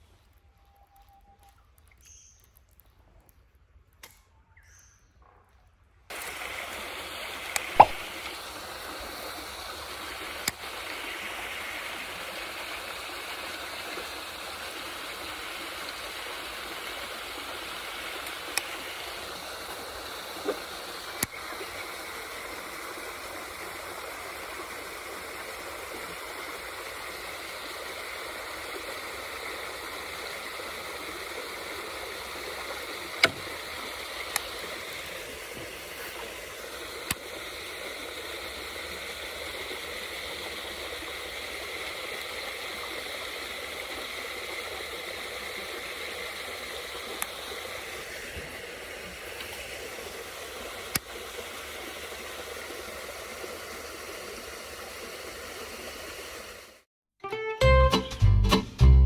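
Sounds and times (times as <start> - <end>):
rushing water: 6.1 - 56.9
clicks and plops: 7.5 - 8.4.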